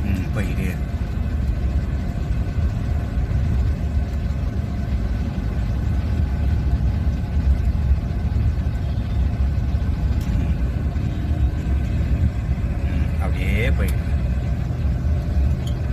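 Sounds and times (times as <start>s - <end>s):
car engine and road noise: 0.0s - 15.9s.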